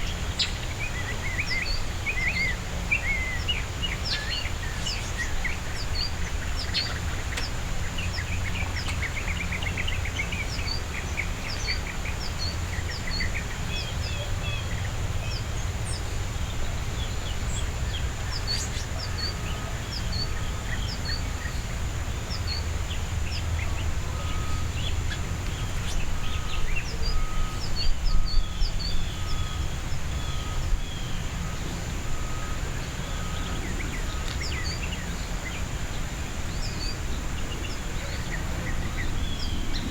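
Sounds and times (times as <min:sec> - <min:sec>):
songbirds chipping: 0:00.0 - 0:39.9.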